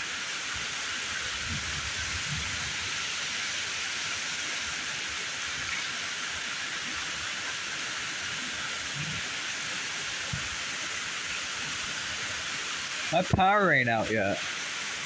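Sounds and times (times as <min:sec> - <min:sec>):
heavy rain pouring: 0:08.2 - 0:15.0.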